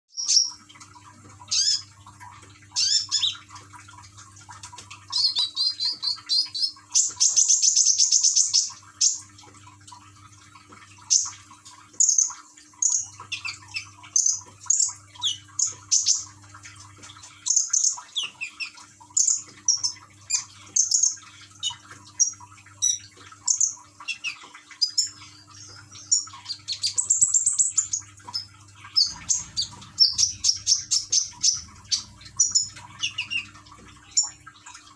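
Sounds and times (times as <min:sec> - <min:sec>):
water trickling: 0:00.1 - 0:34.9
songbird chirping and trilling: 0:05.0 - 0:09.3, 0:12.0 - 0:16.3, 0:17.2 - 0:34.7.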